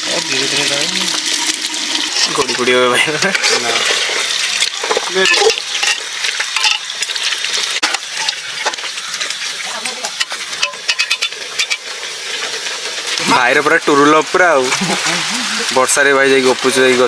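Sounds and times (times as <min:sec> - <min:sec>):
curry sizzling in a pot: 0:00.0 - 0:17.0
metal spoon scraping a pot: 0:03.4 - 0:09.3, 0:10.1 - 0:12.7.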